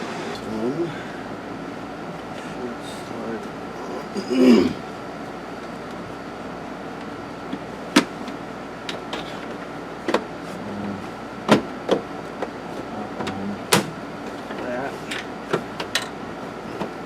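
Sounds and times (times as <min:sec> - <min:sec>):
steady background hum: 0:00.0 - 0:17.0
knocks of car parts being fitted: 0:10.0 - 0:10.3, 0:11.4 - 0:12.5, 0:13.2 - 0:14.0.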